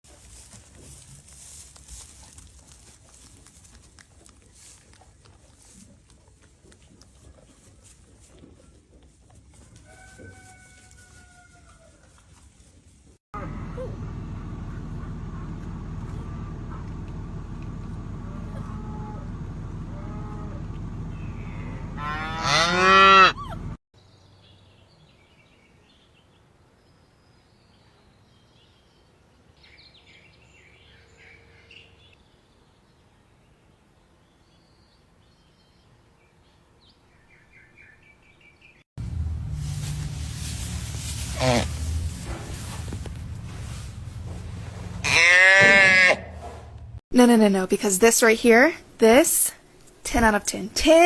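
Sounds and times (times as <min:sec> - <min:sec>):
animal call: 0:18.4 - 0:23.7
background noise: 0:24.0 - 0:38.8, 0:46.4 - 0:51.0.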